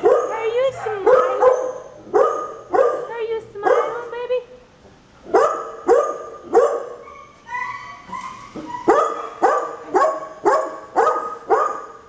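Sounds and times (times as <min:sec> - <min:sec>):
dog barking: 0:00.0 - 0:04.1, 0:05.3 - 0:07.3, 0:08.2 - 0:12.0
dog whining: 0:06.9 - 0:09.7.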